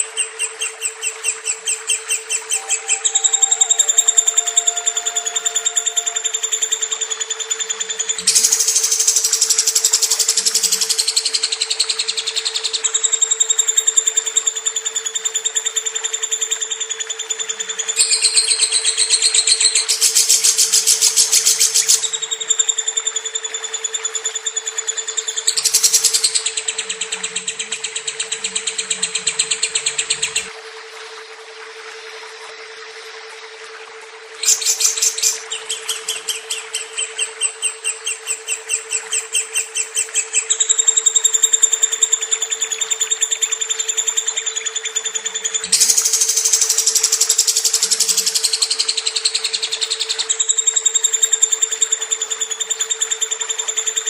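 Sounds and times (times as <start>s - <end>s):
steady hum: 0.0s - 54.0s
lovebird chattering trill: 0.1s - 14.4s, 34.4s - 54.0s.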